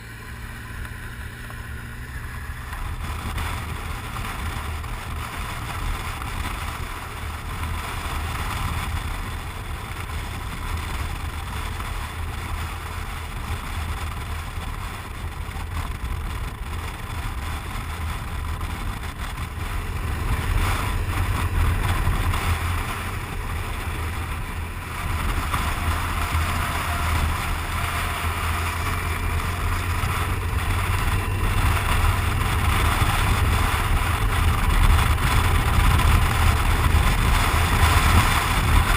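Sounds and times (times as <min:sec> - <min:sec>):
motorcycle engine droning: 0:00.0 - 0:38.9
wind rushing over microphone: 0:00.0 - 0:38.9.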